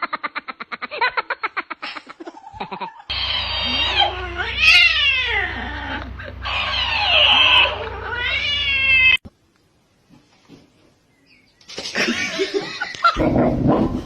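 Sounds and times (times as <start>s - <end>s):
steady low hum: 3.1s - 9.2s
cat meowing in long yowls: 3.3s - 9.2s.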